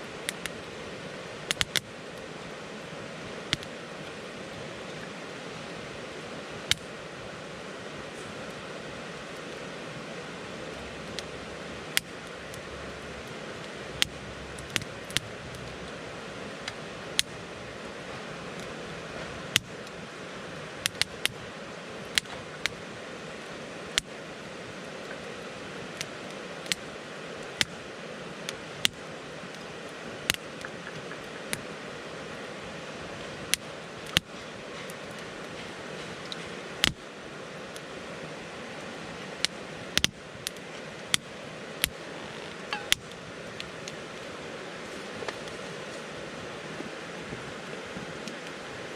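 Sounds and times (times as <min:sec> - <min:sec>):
campfire crackling: 0:00.0 - 0:48.9
fire pops and snaps: 0:01.5 - 0:01.9, 0:03.5 - 0:03.7, 0:11.9 - 0:12.6, 0:13.6 - 0:16.0, 0:20.8 - 0:21.4, 0:27.5 - 0:27.8, 0:28.8 - 0:29.6, 0:30.2 - 0:31.7, 0:36.2 - 0:37.0, 0:39.4 - 0:44.0.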